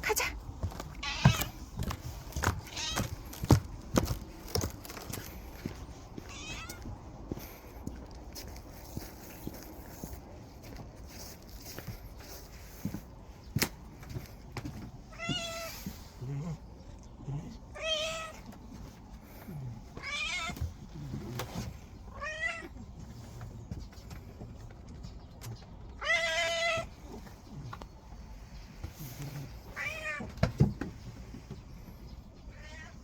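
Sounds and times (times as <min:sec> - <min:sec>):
cat meowing: 0:01.0 - 0:01.7, 0:02.6 - 0:03.2, 0:06.2 - 0:06.9, 0:15.1 - 0:15.8, 0:17.7 - 0:18.4, 0:20.0 - 0:20.6, 0:29.7 - 0:30.3.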